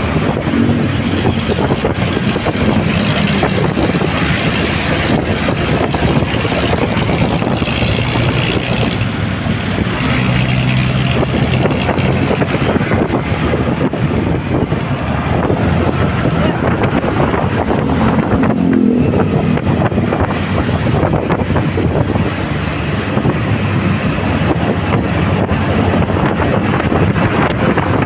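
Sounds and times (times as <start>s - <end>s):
wind on microphone: 0.0s - 28.0s.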